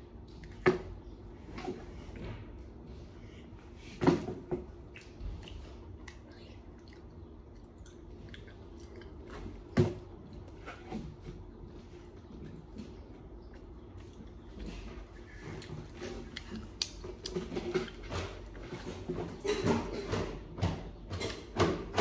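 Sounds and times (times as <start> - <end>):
chewing and biting food: 4.8 - 10.6, 12.2 - 18.8.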